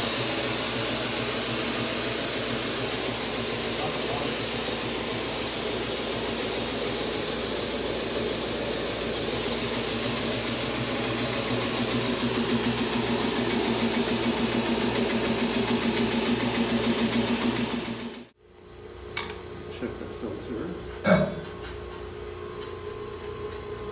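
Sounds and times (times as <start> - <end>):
boiler room machinery hissing: 0.0 - 18.4.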